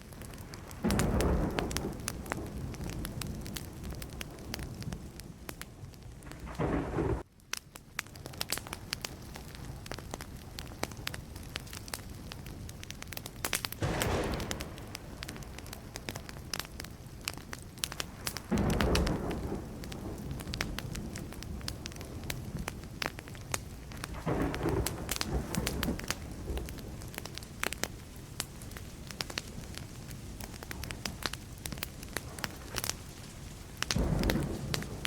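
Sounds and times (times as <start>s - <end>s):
wood fire crackling: 0.0s - 35.0s
distant thunder rumbling: 0.4s - 7.2s, 13.8s - 16.8s, 18.0s - 27.4s, 33.8s - 35.0s.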